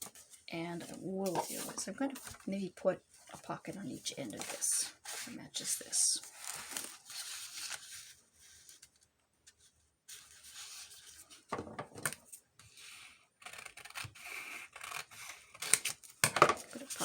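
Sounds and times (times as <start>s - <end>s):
paper rustling: 0.0s - 2.5s, 6.2s - 11.4s.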